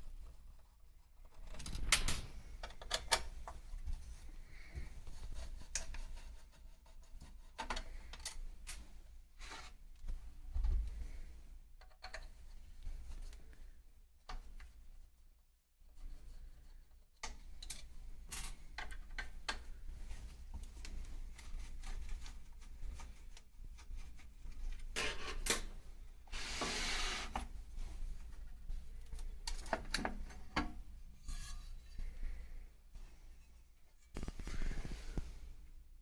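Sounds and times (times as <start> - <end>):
small parts clicking and knocking: 0.6 - 3.6
air hiss: 26.3 - 27.4
rubbing and scraping: 26.3 - 28.1, 31.1 - 32.4.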